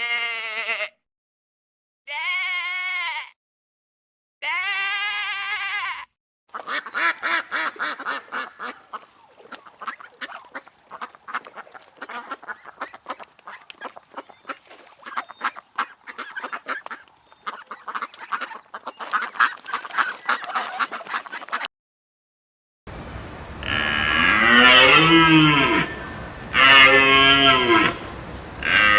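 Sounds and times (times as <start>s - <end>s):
animal bleating: 0.0s - 1.0s, 2.1s - 3.4s, 4.4s - 6.1s, 23.6s - 28.9s
ducks quacking: 6.5s - 21.7s, 23.2s - 28.9s.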